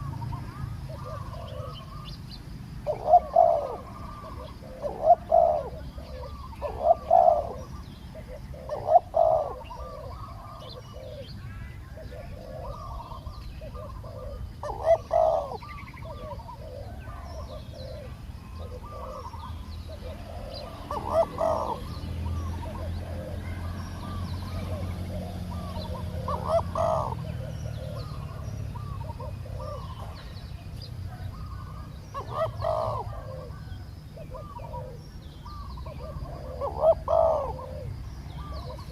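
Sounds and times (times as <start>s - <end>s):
doves cooing: 0.0s - 38.9s
small birds chirping: 0.0s - 38.9s.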